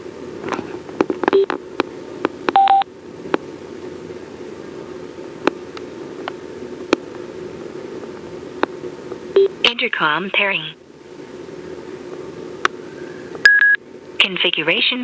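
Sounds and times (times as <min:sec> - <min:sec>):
steady low hum: 0:00.0 - 0:15.0
short electronic beeps: 0:02.6 - 0:02.8.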